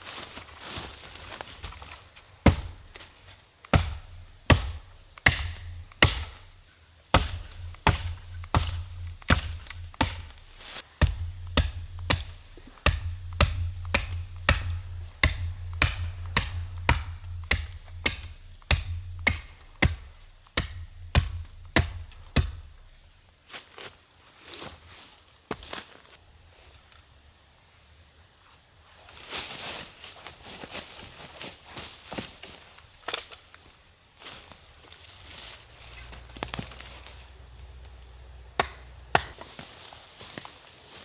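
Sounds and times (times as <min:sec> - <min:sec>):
tool chopping wood: 0:02.4 - 0:23.1, 0:38.6 - 0:39.4
music with deep bass: 0:07.4 - 0:23.0.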